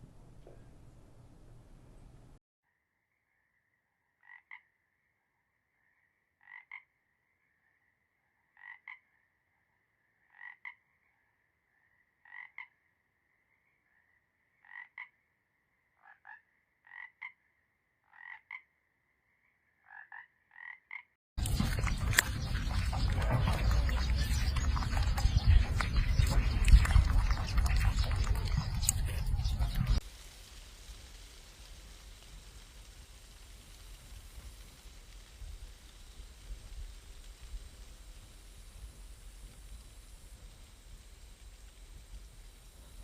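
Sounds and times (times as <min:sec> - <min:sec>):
frog croaking: 0:19.8 - 0:21.2.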